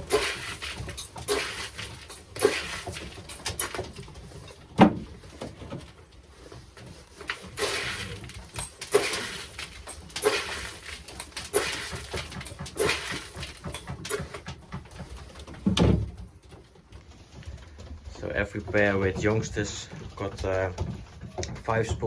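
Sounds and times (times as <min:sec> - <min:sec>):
dull thump: 0:04.8 - 0:05.2
grain poured into bowl: 0:07.5 - 0:13.4.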